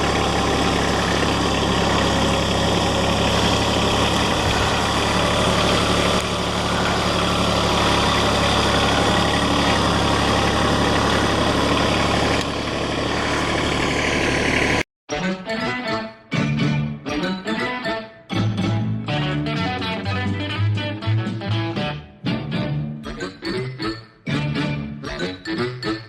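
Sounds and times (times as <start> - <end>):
tractor diesel engine idling: 0.0 - 14.8.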